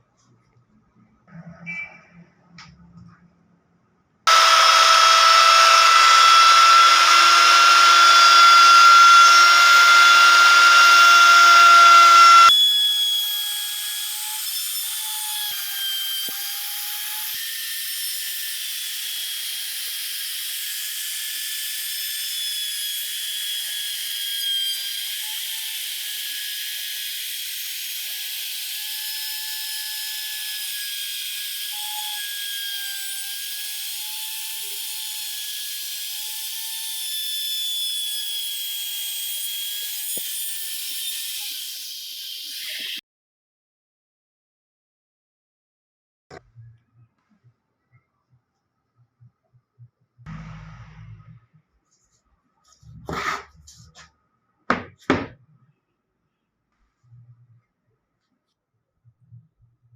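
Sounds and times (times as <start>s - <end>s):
power tool whining: 4.3s - 43.0s.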